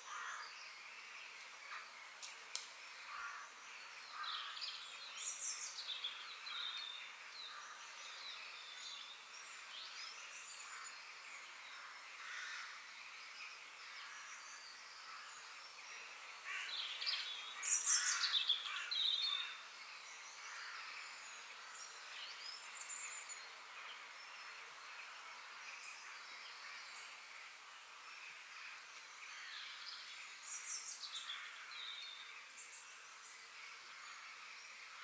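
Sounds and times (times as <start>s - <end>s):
steady background hiss: 0.0s - 35.0s
birds chirping and calling: 13.9s - 24.4s.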